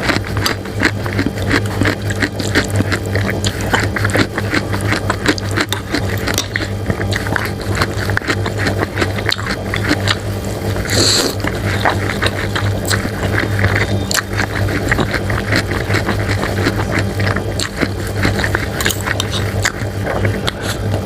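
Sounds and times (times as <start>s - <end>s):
close chewing with wet smacks: 0.0s - 21.0s
steady low hum: 0.0s - 21.0s.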